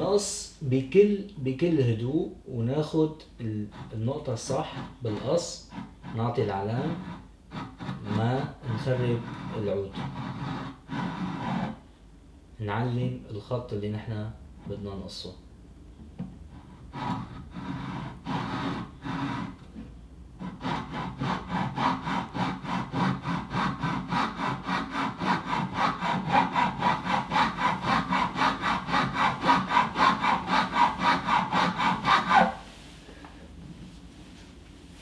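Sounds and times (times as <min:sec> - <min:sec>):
hand saw cutting wood: 0:03.7 - 0:11.8, 0:16.6 - 0:19.6, 0:20.4 - 0:32.6.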